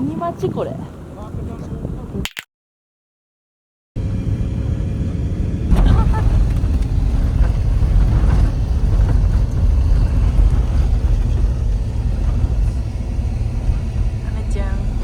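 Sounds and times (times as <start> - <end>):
car engine rumbling: 4.0 - 15.0.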